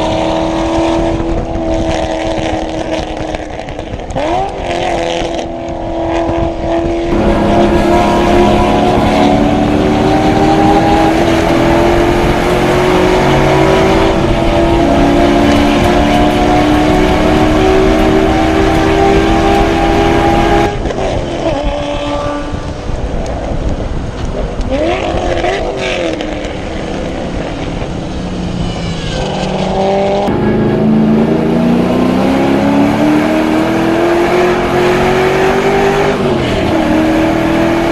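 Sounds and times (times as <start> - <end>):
race car engine at full throttle: 0.0 - 37.9
engine rev blips: 7.1 - 20.8, 28.4 - 37.9.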